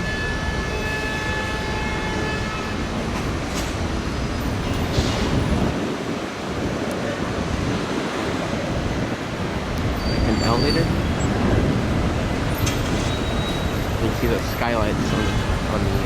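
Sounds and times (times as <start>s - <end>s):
thin high whine: 0.0s - 3.0s
vehicle rumble and road noise: 0.0s - 16.0s.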